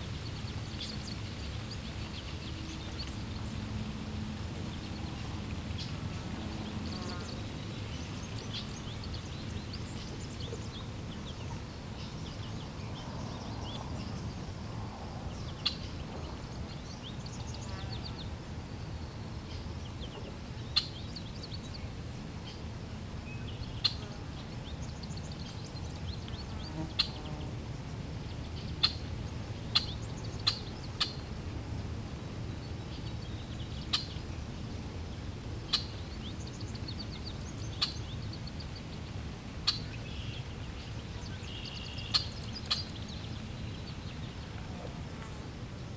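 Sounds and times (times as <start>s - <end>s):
birds chirping: 35.7s - 45.0s.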